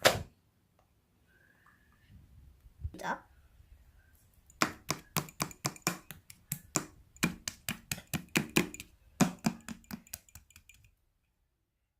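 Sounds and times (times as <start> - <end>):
sharp taps: 4.5 - 10.9.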